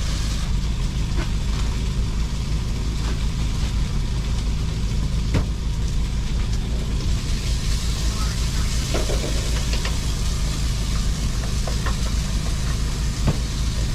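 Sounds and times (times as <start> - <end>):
engine running low rumble: 0.0 - 13.9.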